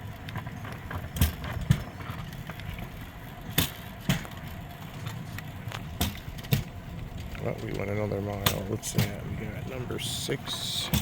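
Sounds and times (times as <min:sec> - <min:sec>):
steel wheels rumbling on rails: 0:00.0 - 0:11.0
wheels clacking over rail joints: 0:00.0 - 0:11.0.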